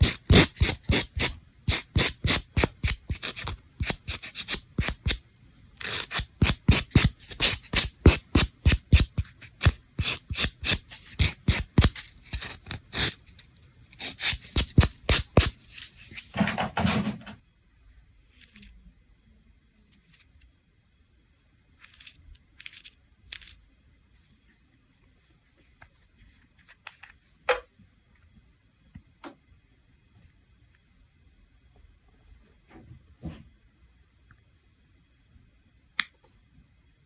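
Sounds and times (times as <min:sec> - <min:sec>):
scraping or tearing sound: 0:00.0 - 0:05.2, 0:05.8 - 0:17.2
sharp clicks and scrapes: 0:05.8 - 0:17.3.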